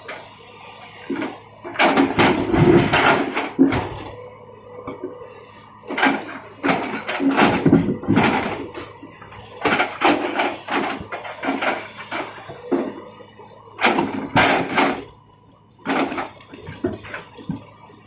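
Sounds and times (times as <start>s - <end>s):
faint steady hum: 0.0s - 18.0s
knocks and clattering scrapes: 1.0s - 4.2s, 5.9s - 13.2s, 13.8s - 15.1s, 15.8s - 17.8s.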